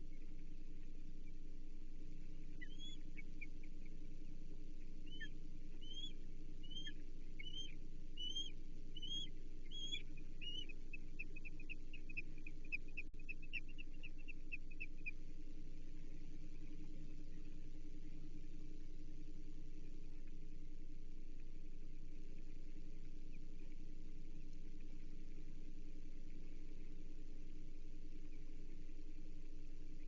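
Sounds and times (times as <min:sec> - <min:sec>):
low hum: 0:00.0 - 0:30.0
osprey whistled chirps: 0:02.4 - 0:03.5, 0:05.0 - 0:15.2.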